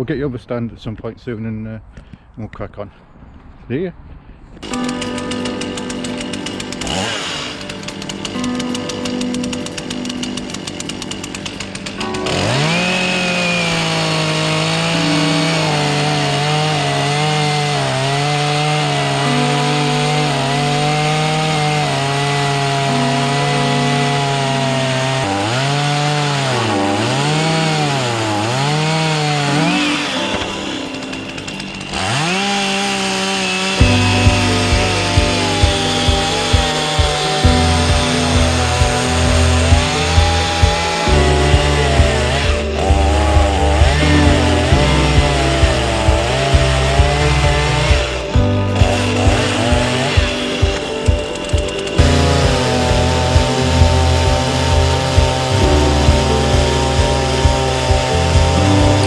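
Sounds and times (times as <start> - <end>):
chainsaw revving and cutting: 4.6 - 59.0
background music with a beat: 33.8 - 59.0.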